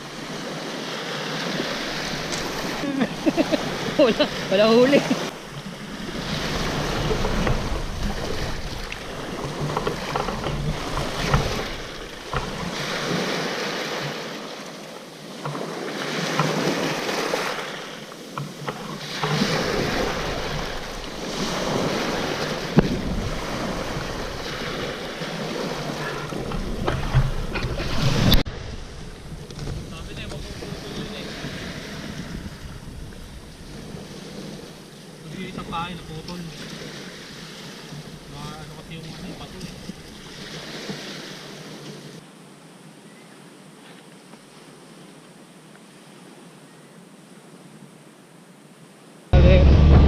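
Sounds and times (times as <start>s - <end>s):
wind gusting on microphone: 0.0s - 14.2s, 18.5s - 42.2s
sea waves on rocky shore: 0.0s - 42.3s.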